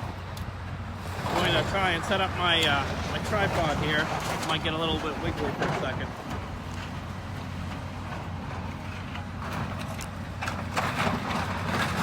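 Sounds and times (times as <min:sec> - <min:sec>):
clunks and knocks: 0:02.5 - 0:07.0, 0:07.6 - 0:12.0.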